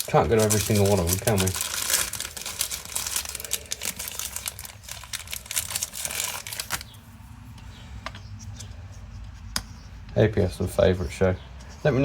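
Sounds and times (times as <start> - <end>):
rustling and crinkling: 0.0 - 7.6.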